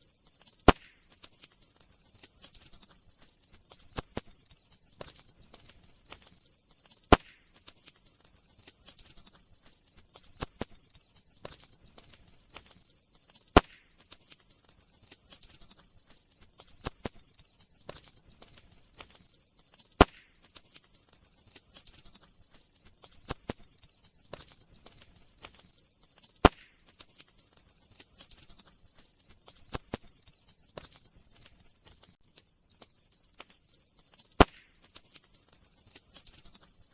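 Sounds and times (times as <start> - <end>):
campfire crackling: 0.0 - 36.9
faint high hiss: 0.0 - 36.9
sharp loud fire pops: 0.7 - 1.0, 7.1 - 7.4, 13.6 - 13.9, 20.0 - 20.3, 26.4 - 26.8, 34.4 - 34.7.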